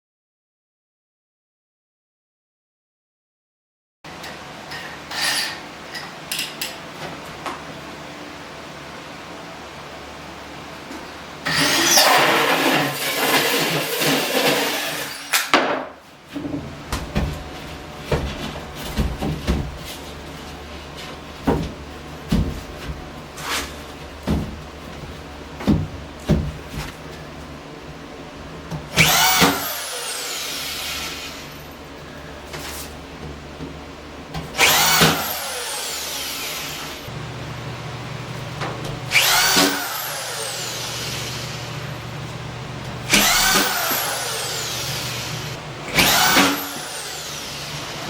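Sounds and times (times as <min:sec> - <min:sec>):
loud rasping cutting noise: 0:11.4 - 0:15.5, 0:28.9 - 0:31.6, 0:34.6 - 0:37.1, 0:39.1 - 0:41.9, 0:43.0 - 0:48.0
power drill spinning: 0:11.5 - 0:15.5, 0:29.0 - 0:31.7, 0:34.6 - 0:37.1, 0:39.1 - 0:42.1, 0:43.0 - 0:48.0.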